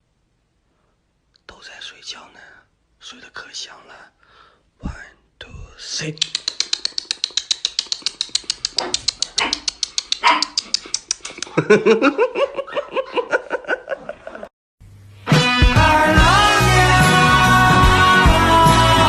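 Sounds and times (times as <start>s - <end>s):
fast even ticking: 6.1s - 11.6s
dogs yipping and whining: 7.0s - 11.5s
loud rock music: 15.3s - 19.0s.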